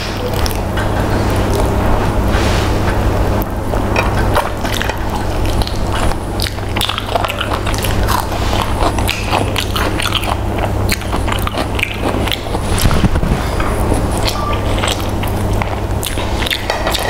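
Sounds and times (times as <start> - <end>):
steady low hum: 0.0 - 17.0
chewing and wet mouth smacks: 4.0 - 17.0.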